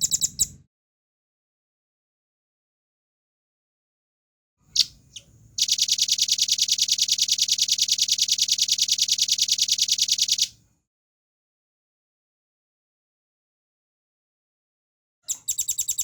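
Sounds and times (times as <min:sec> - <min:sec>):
bird calling with rapid trill: 0:00.0 - 0:00.6, 0:04.7 - 0:10.6, 0:15.3 - 0:16.0.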